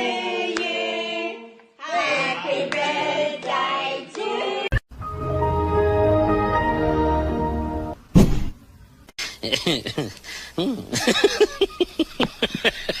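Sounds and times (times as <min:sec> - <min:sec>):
voices singing: 0:00.0 - 0:04.8.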